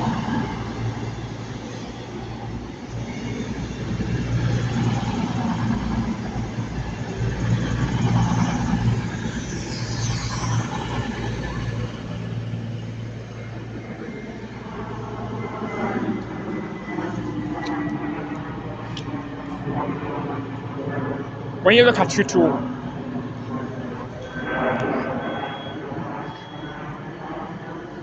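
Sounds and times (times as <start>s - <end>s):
diesel train engines humming: 0.0s - 28.0s
high squeal: 7.8s - 17.6s, 22.9s - 27.4s.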